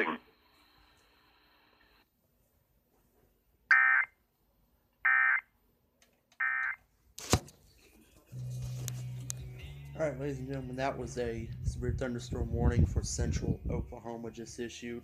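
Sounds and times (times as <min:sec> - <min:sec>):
steady low hum: 0:07.6 - 0:15.0.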